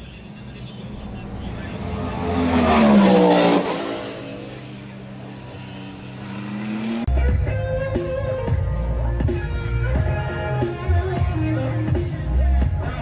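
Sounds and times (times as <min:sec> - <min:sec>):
race car passing at speed: 0:00.2 - 0:07.1.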